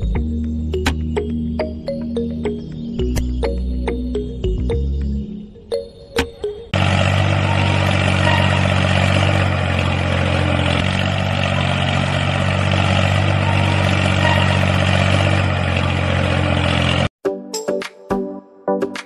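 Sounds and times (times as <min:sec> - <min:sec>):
diesel tractor engine idling: 0:06.8 - 0:17.1.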